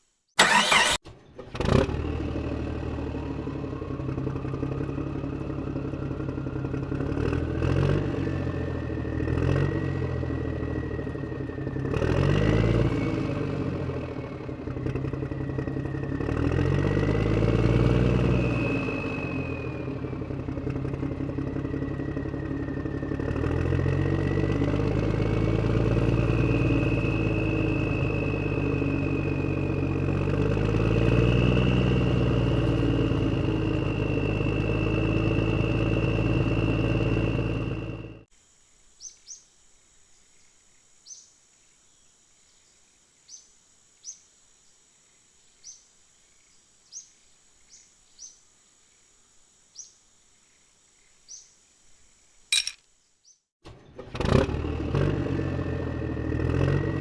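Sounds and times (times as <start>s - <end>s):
tractor engine running: 0.4s - 38.2s
sharp click: 52.6s - 52.8s.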